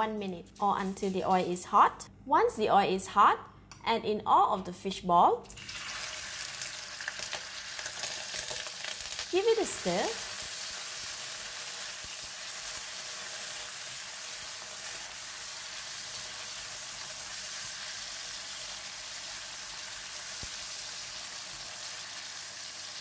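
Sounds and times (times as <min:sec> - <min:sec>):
food sizzling in oil: 0:05.5 - 0:23.0.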